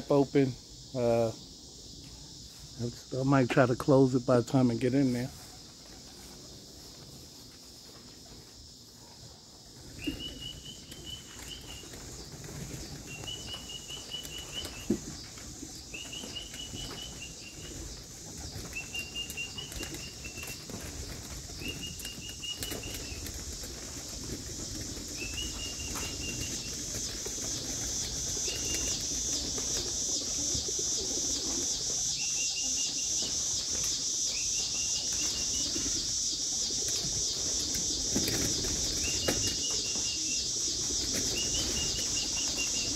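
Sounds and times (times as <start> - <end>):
high pulsing insect chorus: 0.0 - 42.9
pigeon wings flapping: 16.4 - 30.5, 36.8 - 39.8.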